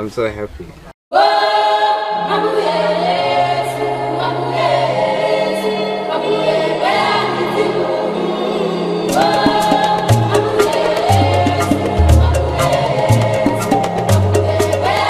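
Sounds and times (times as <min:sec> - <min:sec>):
choral singing: 0:01.1 - 0:15.0
low bass line: 0:11.9 - 0:13.6.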